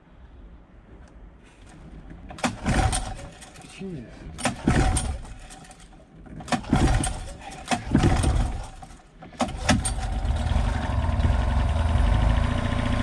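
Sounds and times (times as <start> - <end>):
starter cord pulls: 1.6 - 3.7, 4.4 - 10.6
outboard motor idling: 6.6 - 8.8.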